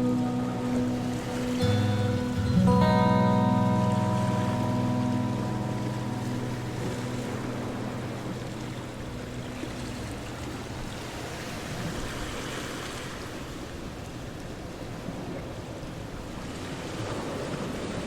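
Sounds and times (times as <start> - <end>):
guitar notes ringing: 0.0 - 11.8
ocean waves washing in: 0.0 - 18.0.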